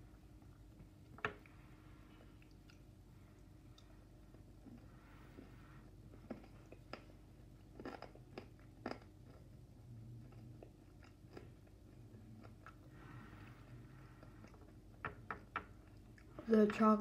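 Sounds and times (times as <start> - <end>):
person chewing crunchy chocolate: 5.9 - 13.0.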